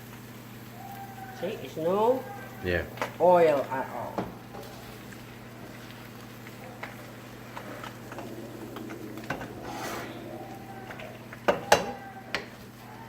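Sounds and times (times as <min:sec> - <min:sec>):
pans and utensils clinking: 0:03.0 - 0:13.0
scraping swell: 0:07.2 - 0:11.5.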